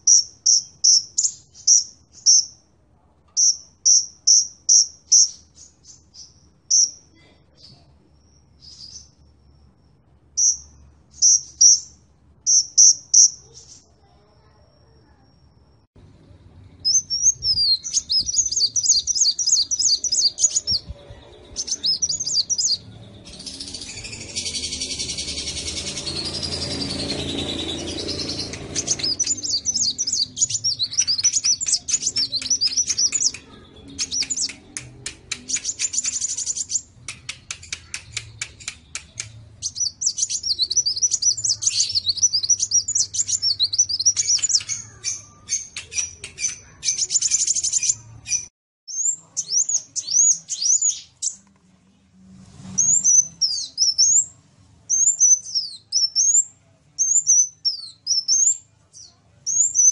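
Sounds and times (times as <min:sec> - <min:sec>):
birds twittering and chirping: 0:00.0 - 0:51.6, 0:52.4 - 0:59.9
low steady hum: 0:14.0 - 0:35.9
rapid clicking bird notes: 0:31.0 - 0:39.5.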